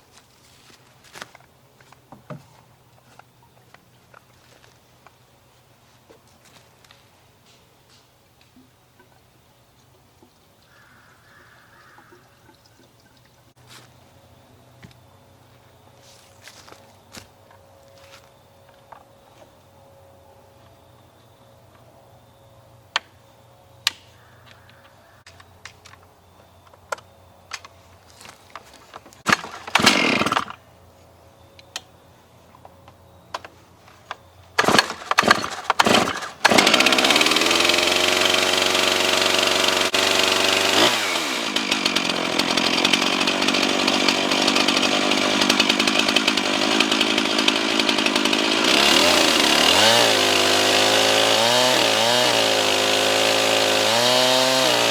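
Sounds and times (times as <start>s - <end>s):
starter cord pulls: 29.2s - 30.6s, 34.6s - 50.5s
chainsaw cutting wood: 29.2s - 30.7s, 34.6s - 54.9s.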